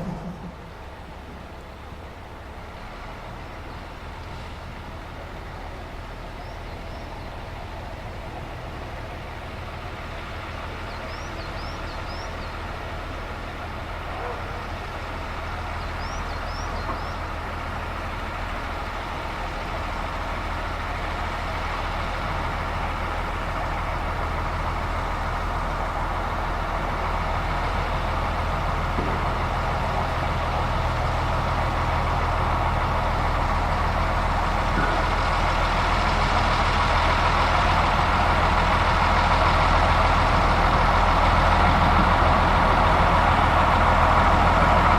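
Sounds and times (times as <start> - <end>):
diesel engine running: 0.0 - 44.9
bird chirps: 15.8 - 17.2.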